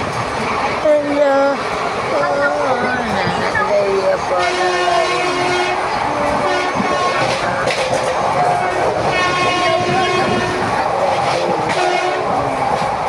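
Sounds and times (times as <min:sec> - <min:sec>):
train rush and rumble: 0:00.0 - 0:13.0
wheels clacking over rail joints: 0:00.0 - 0:13.0.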